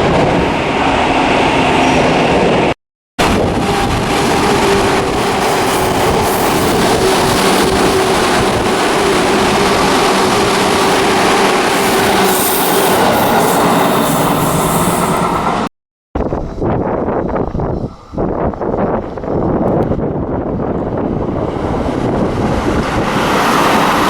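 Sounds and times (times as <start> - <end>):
electric train passing: 0.0 - 15.7, 20.5 - 24.0.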